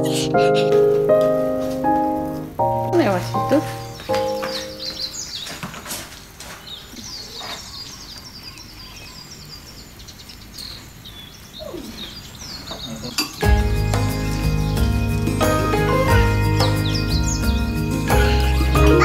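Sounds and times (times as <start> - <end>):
background music: 0.0 - 5.0, 13.4 - 19.0
small birds chirping: 0.0 - 19.0.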